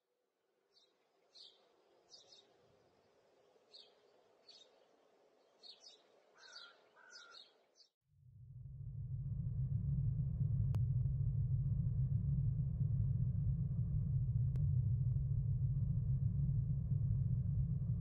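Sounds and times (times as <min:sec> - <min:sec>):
faint bird chirps: 0:00.7 - 0:02.6, 0:03.6 - 0:07.9
low background hum: 0:08.2 - 0:18.0.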